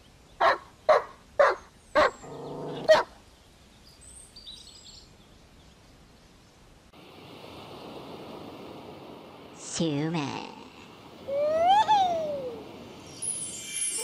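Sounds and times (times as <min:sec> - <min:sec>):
outdoor ambience hiss: 0:00.0 - 0:14.0
dog barking: 0:00.4 - 0:02.2, 0:02.9 - 0:03.1
dog growling: 0:02.2 - 0:02.9.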